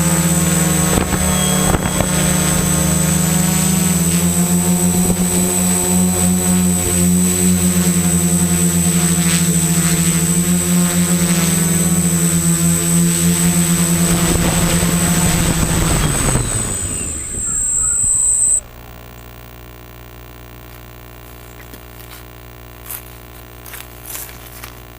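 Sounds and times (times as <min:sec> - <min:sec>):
quadcopter motors buzzing and whining: 0:00.0 - 0:19.0.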